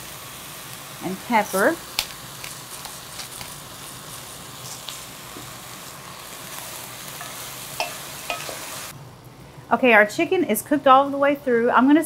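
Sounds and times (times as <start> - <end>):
food sizzling in oil: 0.0 - 9.0.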